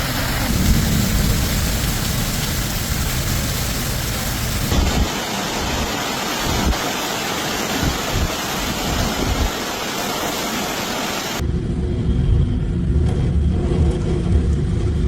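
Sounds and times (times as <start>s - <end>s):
heavy rain: 0.0s - 11.4s
rushing floodwater: 0.0s - 11.4s.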